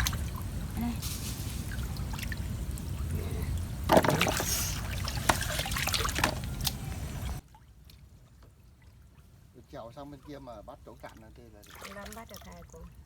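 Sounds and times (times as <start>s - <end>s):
water trickling around a boat: 0.0s - 13.0s
loud splash: 3.8s - 7.4s.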